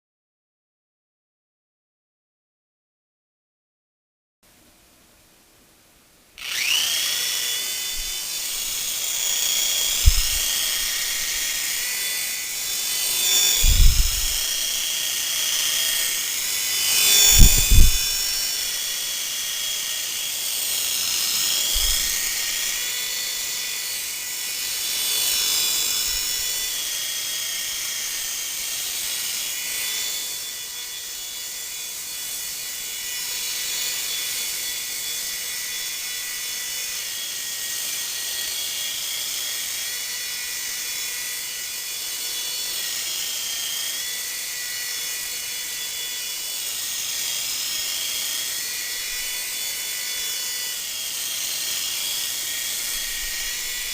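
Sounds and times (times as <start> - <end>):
toy helicopter motor whine: 6.4 - 53.9
low thumps: 10.0 - 10.5.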